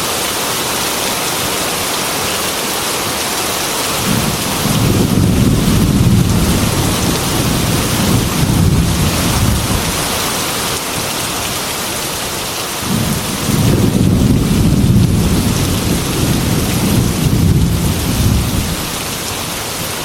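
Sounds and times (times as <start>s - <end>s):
heavy rain falling: 0.0s - 20.0s
low rolling thunder: 4.0s - 10.2s, 12.8s - 19.3s.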